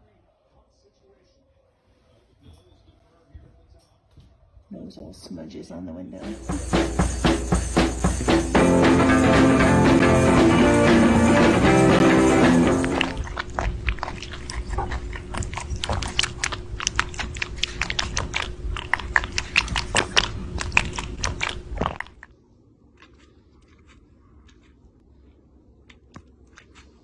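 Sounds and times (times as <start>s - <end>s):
pet chewing and crunching: 6.2s - 27.0s.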